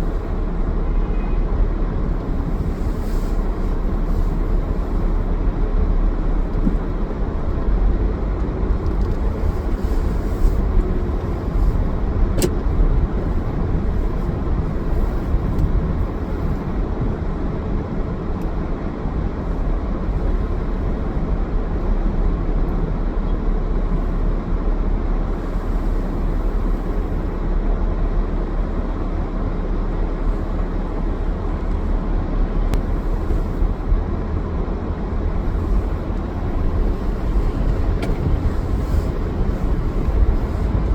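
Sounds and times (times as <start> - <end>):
car engine and road noise: 0.0 - 40.9
brief click: 12.4 - 12.6.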